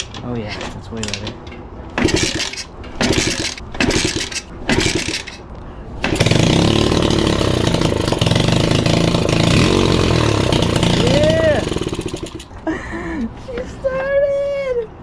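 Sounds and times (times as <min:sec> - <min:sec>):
motorbike kick-start kicks: 0:00.0 - 0:05.4, 0:06.0 - 0:12.5
motorbike engine running: 0:02.0 - 0:05.4, 0:06.0 - 0:12.5.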